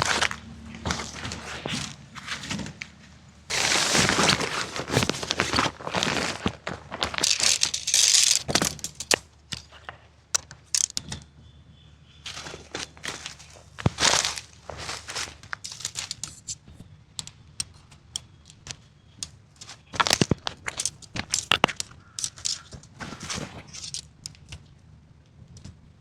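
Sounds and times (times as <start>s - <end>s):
rustling and crinkling: 0.0s - 11.3s, 12.2s - 25.8s
sharp little clicks: 7.1s - 11.3s, 15.5s - 23.0s.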